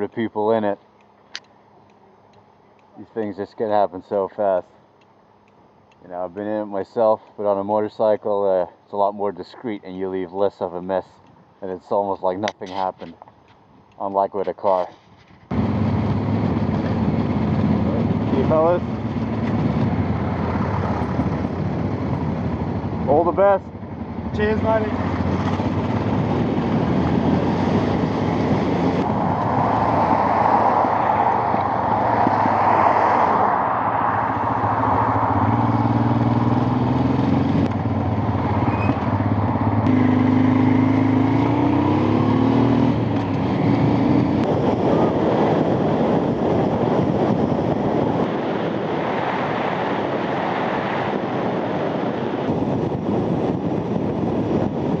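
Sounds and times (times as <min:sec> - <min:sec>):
motorcycle engine: 0:15.5 - 0:46.2
wind rushing past: 0:23.9 - 0:55.0.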